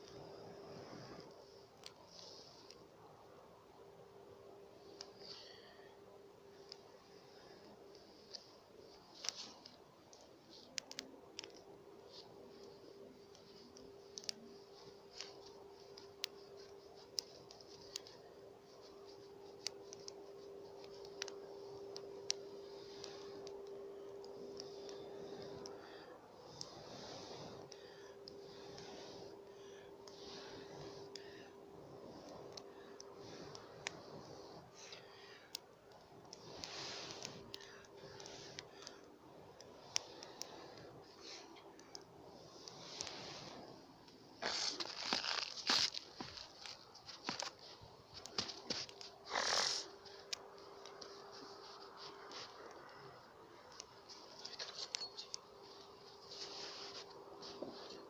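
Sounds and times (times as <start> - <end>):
faint hiss: 0.0 - 58.0
steady low hum: 0.0 - 58.0
campfire crackling and popping: 27.7 - 51.2.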